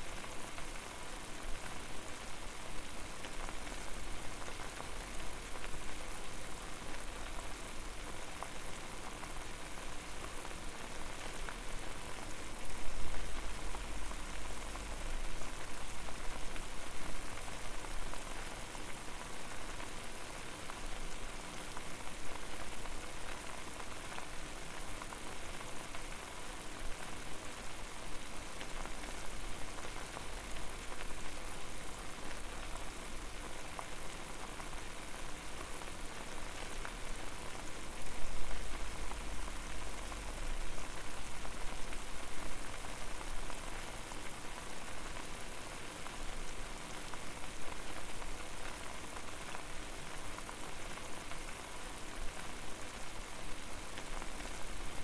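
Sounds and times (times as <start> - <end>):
water boiling and bubbling: 0.0 - 55.0.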